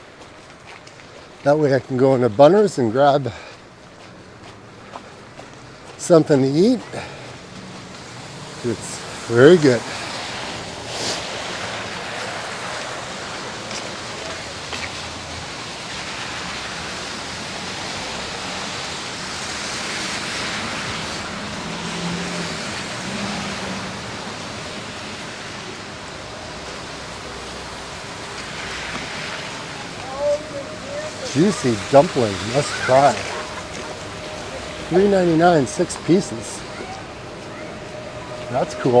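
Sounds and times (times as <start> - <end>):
passing car tyres hissing: 4.6 - 39.0
faint engine hum: 19.6 - 39.0.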